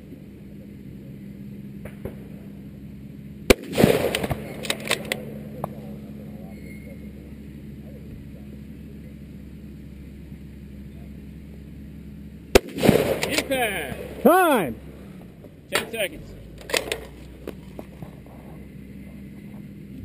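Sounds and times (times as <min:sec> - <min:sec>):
rifle shot with echo: 0:03.5 - 0:05.3, 0:12.5 - 0:14.2
rifle bolt clicks: 0:04.1 - 0:05.2.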